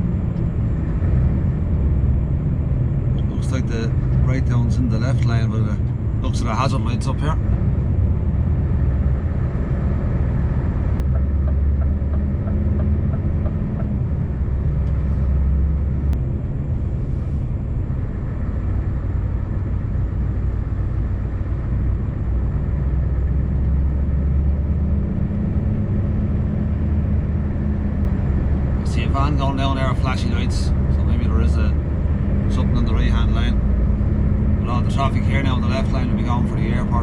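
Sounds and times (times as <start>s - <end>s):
road noise: 0.0s - 37.0s
truck engine running: 0.0s - 37.0s.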